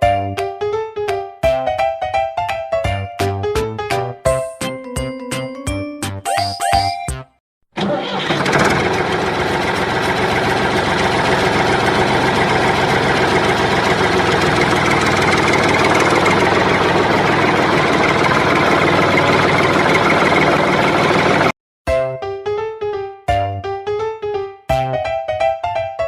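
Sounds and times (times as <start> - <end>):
tractor engine idling: 7.8 - 21.5.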